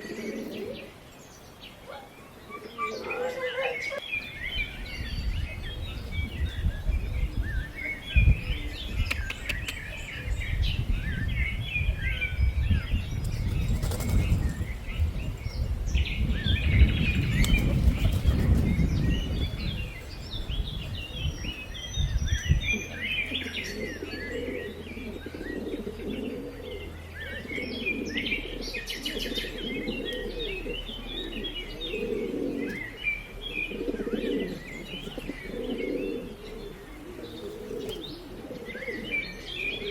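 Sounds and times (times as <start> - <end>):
pigeons cooing: 0.0 - 1.1, 1.7 - 39.9
small birds chirping: 0.0 - 39.9
gusty low rumble: 4.3 - 23.1.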